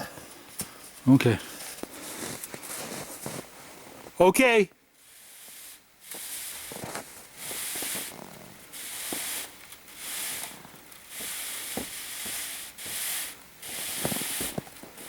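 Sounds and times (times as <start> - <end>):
wire sawing through snow: 5.0 - 15.0.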